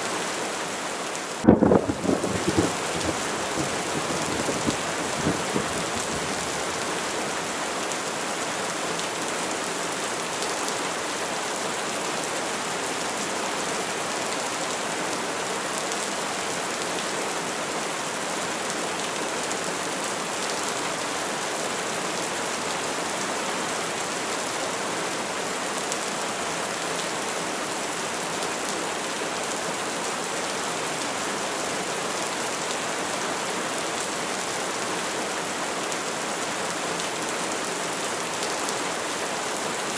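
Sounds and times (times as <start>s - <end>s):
rain hissing on surfaces: 0.0s - 39.9s.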